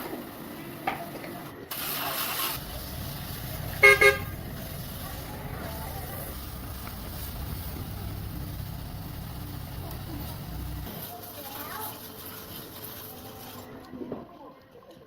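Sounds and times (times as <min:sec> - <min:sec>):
car engine starting and idling: 0:01.7 - 0:10.9
car horn beeps: 0:03.7 - 0:04.5.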